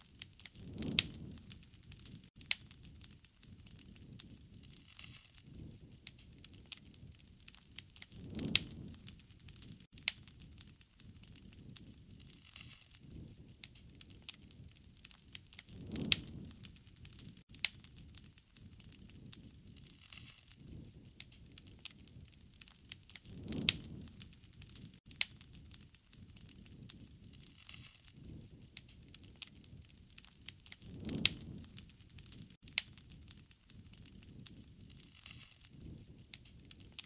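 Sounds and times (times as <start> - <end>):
bonfire crackling and popping: 0.0 - 37.0
soft rush of flame: 0.1 - 37.0.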